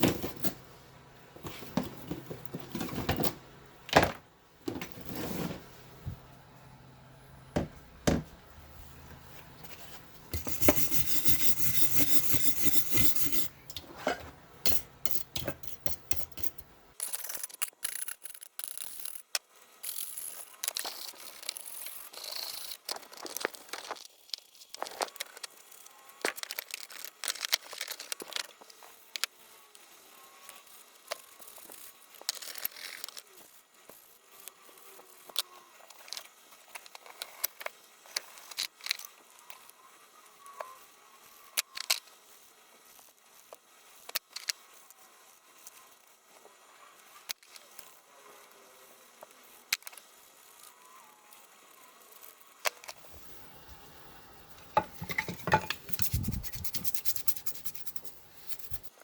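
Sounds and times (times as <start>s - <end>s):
scraping paint: 9.2s - 16.7s, 53.0s - 59.0s.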